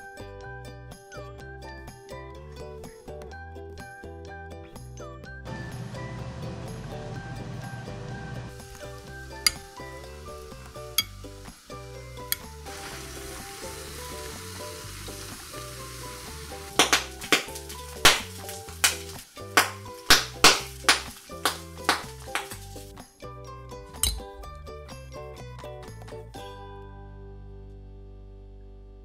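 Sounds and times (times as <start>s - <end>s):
light background music: 0.0s - 29.0s
food sizzling in hot oil: 8.5s - 23.0s
oil popping and crackling: 8.5s - 23.0s.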